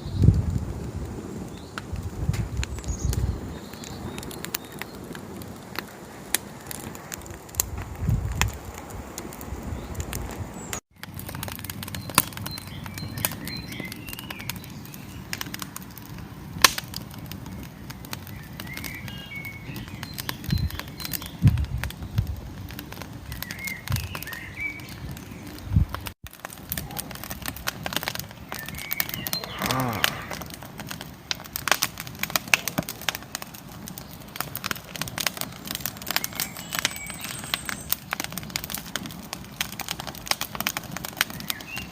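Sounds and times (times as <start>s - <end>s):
wood fire crackling: 0.0s - 41.9s
small birds chirping: 2.5s - 5.2s, 9.6s - 15.6s, 17.3s - 33.2s, 33.8s - 41.9s.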